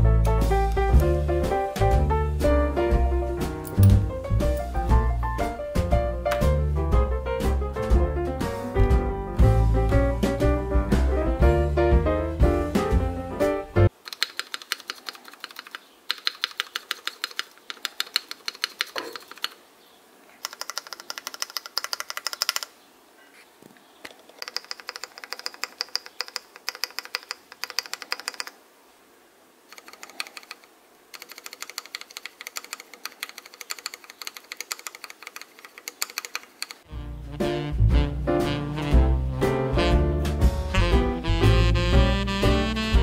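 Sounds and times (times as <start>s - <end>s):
mechanical keyboard typing: 13.9s - 19.6s, 20.4s - 22.7s, 24.1s - 28.6s, 29.7s - 36.9s.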